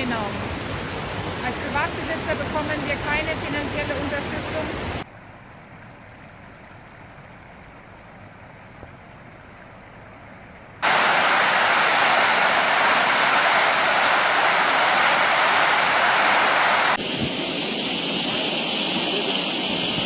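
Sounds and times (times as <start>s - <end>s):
floodwater rushing: 0.0s - 5.0s, 10.8s - 17.5s.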